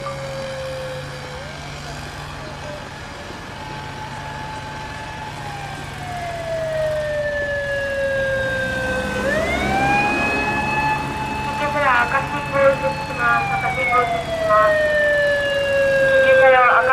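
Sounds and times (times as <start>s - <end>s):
low traffic hum: 0.0s - 16.9s
police car siren wailing: 0.0s - 16.9s.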